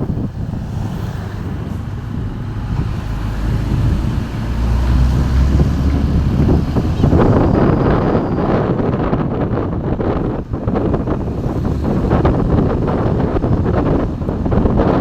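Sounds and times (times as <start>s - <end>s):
vehicle engine rumbling: 0.0s - 15.0s
wind buffeting microphone: 0.0s - 15.0s.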